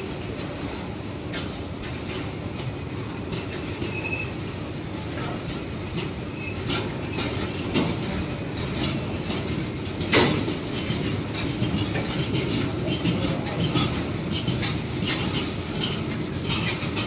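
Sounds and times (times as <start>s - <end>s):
wheels clattering over rail joints: 0.0s - 17.0s
high wheel squeal: 3.6s - 4.5s, 6.3s - 7.6s
loud metal clank: 6.5s - 17.0s.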